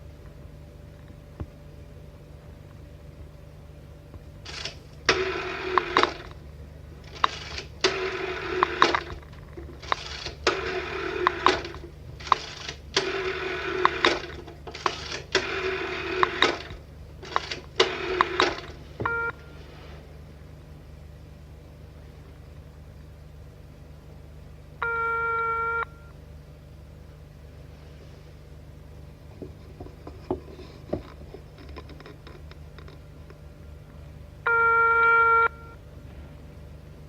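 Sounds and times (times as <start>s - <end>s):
steady low hum: 0.0s - 37.0s
telephone bell ringing: 19.1s - 19.6s, 24.8s - 26.1s, 34.5s - 35.8s.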